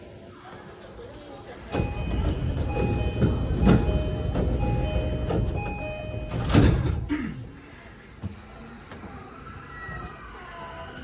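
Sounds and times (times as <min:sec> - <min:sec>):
doors closing with a thud: 0:01.7 - 0:07.1
doors sliding shut: 0:01.7 - 0:07.1
train door chime: 0:01.8 - 0:07.0.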